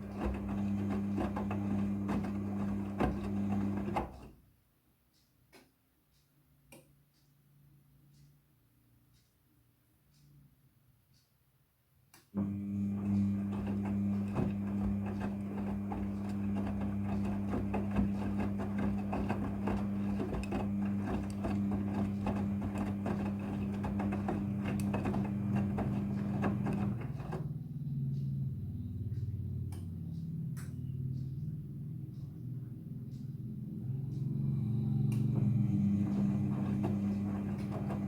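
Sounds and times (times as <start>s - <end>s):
washing machine motor hum: 0.0s - 4.4s, 12.4s - 38.0s
low tone: 27.5s - 36.3s.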